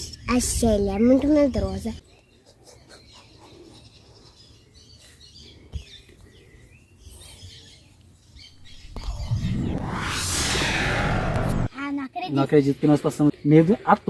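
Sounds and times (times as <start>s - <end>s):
faint birds chirping: 0.0s - 9.7s, 12.3s - 14.0s.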